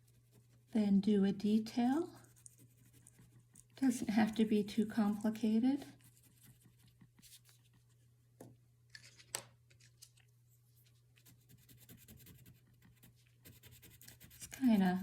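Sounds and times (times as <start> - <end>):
low steady hum: 0.0 - 15.0
crayon scratching on paper: 1.8 - 5.2, 5.8 - 7.8, 11.2 - 15.0.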